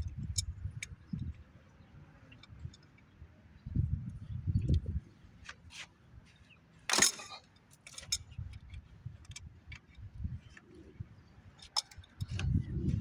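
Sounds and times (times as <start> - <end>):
wrench and metal fittings clinking: 6.9 - 7.4.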